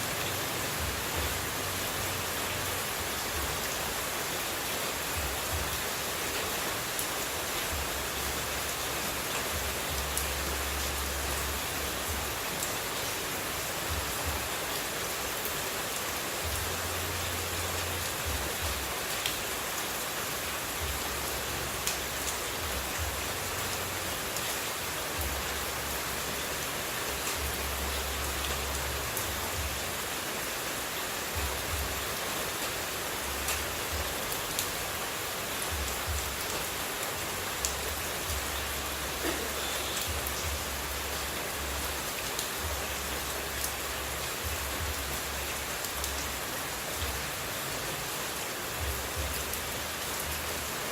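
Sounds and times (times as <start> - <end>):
falling water hiss: 36.7 - 43.1.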